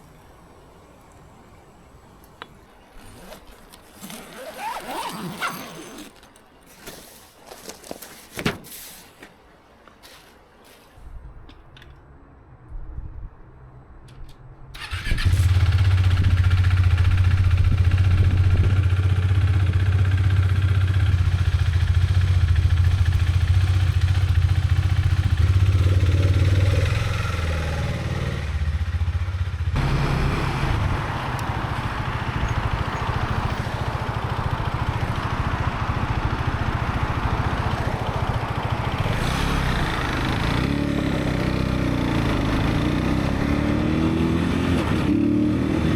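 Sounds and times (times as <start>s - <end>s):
motorcycle engine riding: 2.7s - 8.0s, 14.8s - 45.9s
motorcycle engine idling: 14.9s - 42.7s.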